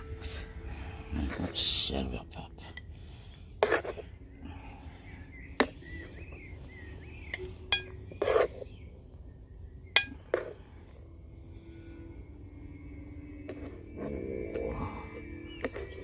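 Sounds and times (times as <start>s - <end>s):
utensils scraping a plate: 3.6s - 4.0s, 7.3s - 8.7s
metal utensils clinking on a pan: 7.7s - 8.5s.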